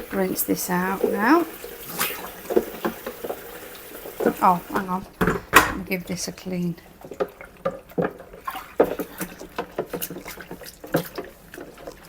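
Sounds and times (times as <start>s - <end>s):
water splashing in a sink: 0.0s - 12.0s
plastic knocking against sink: 4.2s - 5.9s.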